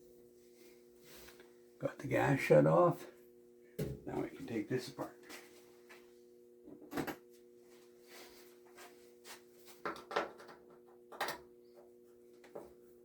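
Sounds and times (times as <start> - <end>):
steady low hum: 0.0 - 9.7.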